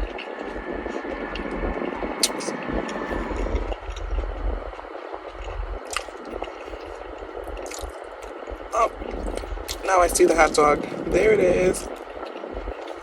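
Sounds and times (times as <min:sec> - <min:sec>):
low rumble: 0:00.0 - 0:13.0
person biting and chewing crunchy food: 0:02.2 - 0:08.3.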